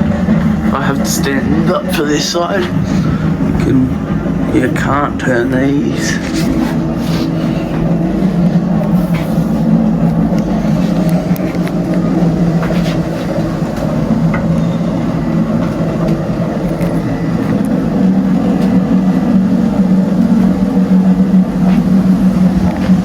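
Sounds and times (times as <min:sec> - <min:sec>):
low mechanical drone: 0:00.0 - 0:23.0.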